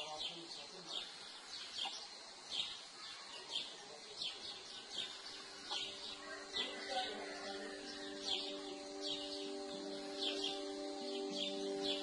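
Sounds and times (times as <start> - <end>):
faint outdoor background: 0.0 - 12.0
steady low tones: 4.5 - 12.0.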